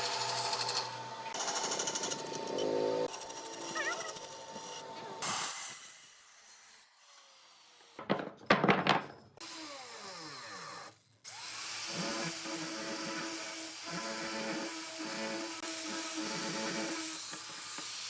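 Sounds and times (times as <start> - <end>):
power tool motor: 0.0 - 4.9, 9.4 - 18.0.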